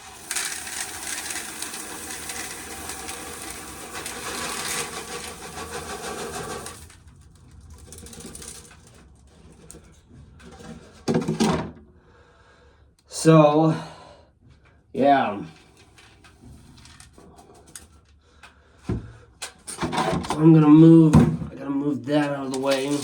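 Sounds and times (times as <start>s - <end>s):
dry corn kernels rattling: 0.0s - 9.0s, 22.4s - 23.0s.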